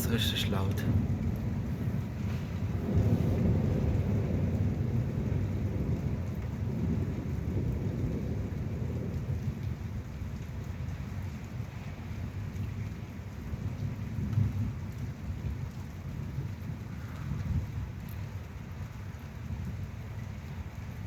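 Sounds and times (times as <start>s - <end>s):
thunder rumbling: 0.0s - 10.1s
steady rain: 0.0s - 21.0s.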